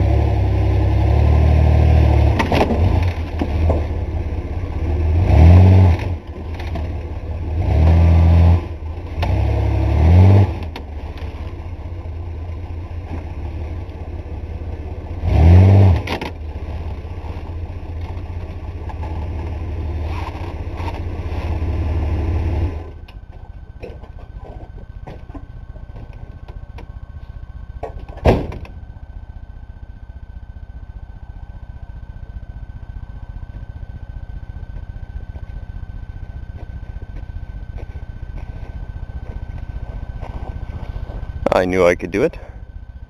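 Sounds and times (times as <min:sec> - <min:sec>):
pickup truck engine revving: 0:00.0 - 0:06.7, 0:07.3 - 0:10.8, 0:15.0 - 0:16.1.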